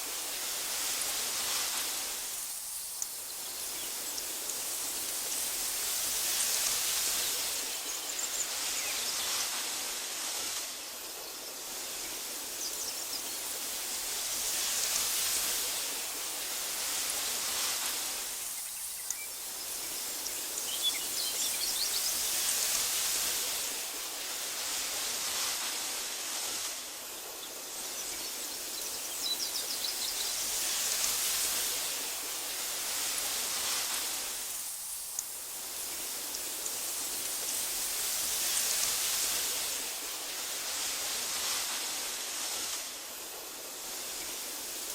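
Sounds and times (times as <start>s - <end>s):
breeze rustling through grass: 0.0s - 44.9s
faint high bird chirps: 18.4s - 22.4s.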